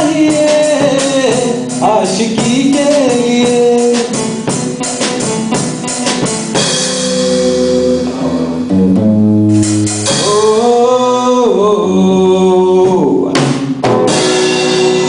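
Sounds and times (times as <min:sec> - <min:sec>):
drum strokes: 0:00.0 - 0:10.9, 0:12.8 - 0:15.0
held sliding chords: 0:00.0 - 0:11.3.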